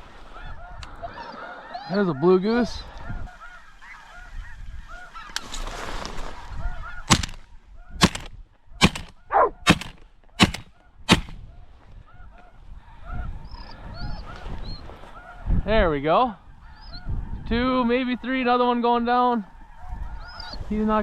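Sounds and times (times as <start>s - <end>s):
geese calling: 0.2s - 5.5s, 6.6s - 11.3s
shotgun shots: 7.1s - 7.4s, 8.0s - 11.4s.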